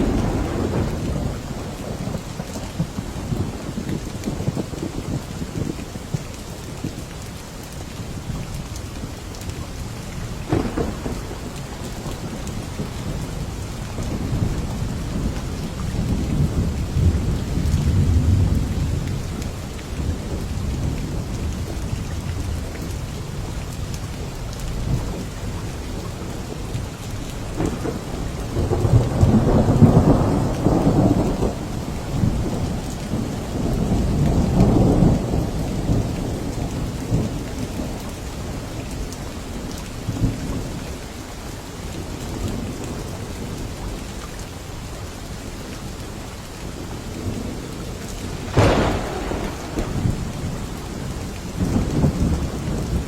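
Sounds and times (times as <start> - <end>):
thunder rolling: 0.0 - 5.0, 10.4 - 19.5, 27.5 - 37.3, 48.2 - 53.0
heavy rain: 0.0 - 53.0.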